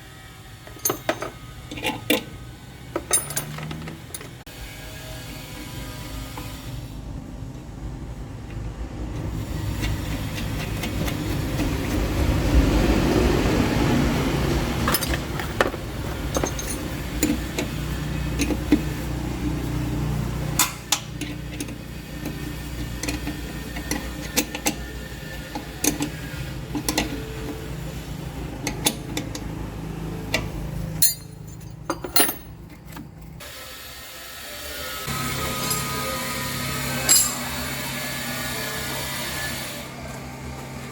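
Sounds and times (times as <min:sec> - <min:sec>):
metal clinks of hand tools: 0:03.0 - 0:04.3, 0:16.2 - 0:17.4, 0:31.0 - 0:32.6, 0:35.6 - 0:36.0, 0:37.0 - 0:37.5.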